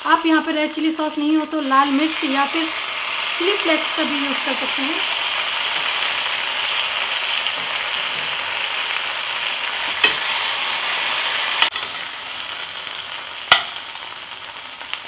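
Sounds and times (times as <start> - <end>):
potato slices sizzling in a pan: 0.0 - 15.0
sharp knocks against a pan: 10.0 - 10.2, 13.5 - 13.8.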